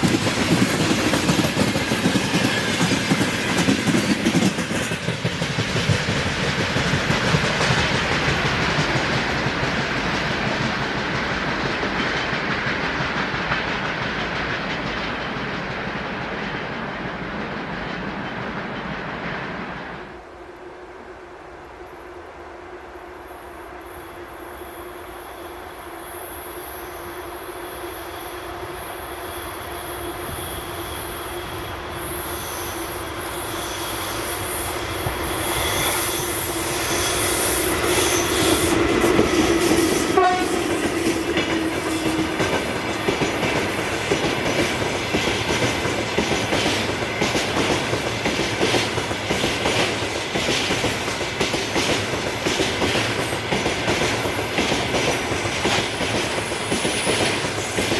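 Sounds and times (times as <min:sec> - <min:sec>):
train wheels clacking over rail joints: 0:00.0 - 0:19.6, 0:33.2 - 0:57.9.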